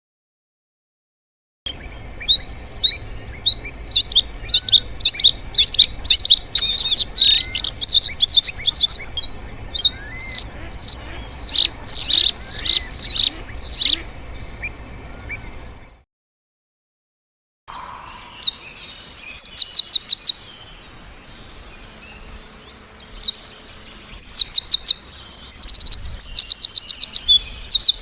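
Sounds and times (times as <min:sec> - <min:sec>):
birds chirping: 0:01.7 - 0:16.0, 0:17.7 - 0:28.0.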